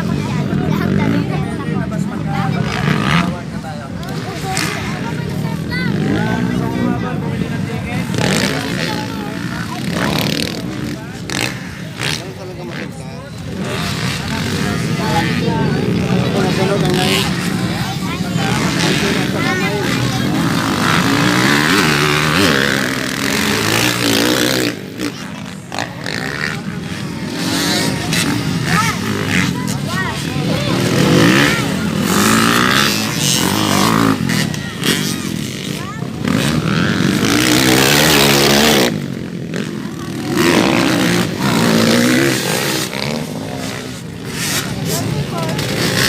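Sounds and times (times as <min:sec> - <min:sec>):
dirt bike engines revving: 0:00.0 - 0:46.0.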